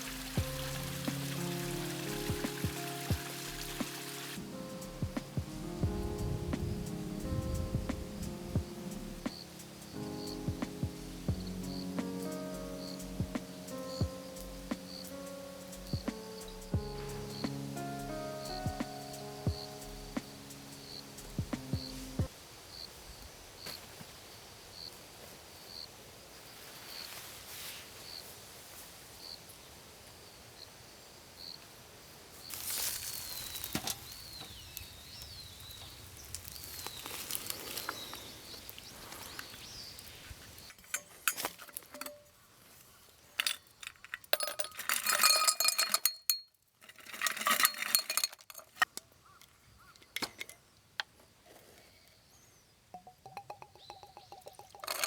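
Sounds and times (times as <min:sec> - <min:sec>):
sharp clinks and clatter: 0:40.7 - 0:42.4, 0:43.3 - 0:48.9, 0:52.9 - 0:55.0.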